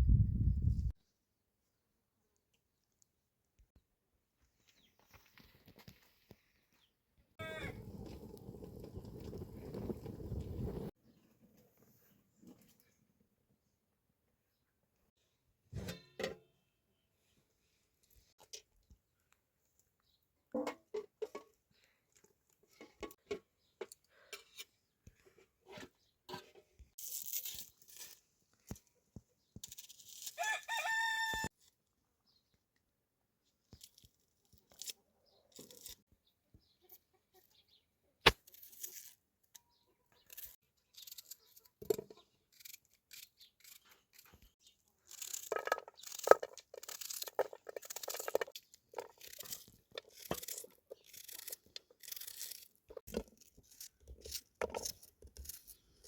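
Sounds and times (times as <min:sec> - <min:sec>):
rooster crowing: 0:07.4 - 0:07.8, 0:30.4 - 0:31.5.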